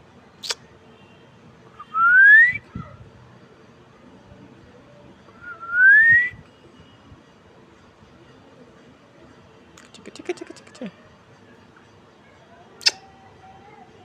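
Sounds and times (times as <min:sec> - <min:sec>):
parrot rising whistle: 0:01.8 - 0:02.6.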